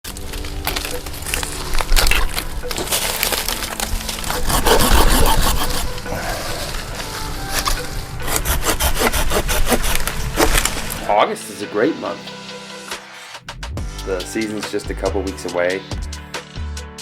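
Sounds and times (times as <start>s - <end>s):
saw cutting wood: 1.4s - 11.2s.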